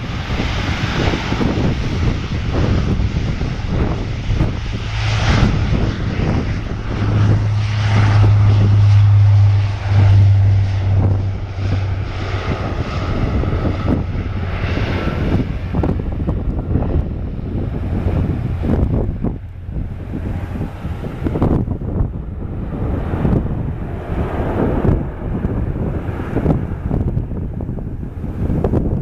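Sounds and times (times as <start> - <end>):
turboprop aircraft drone: 0.0 - 29.0
wind buffeting microphone: 0.0 - 29.0.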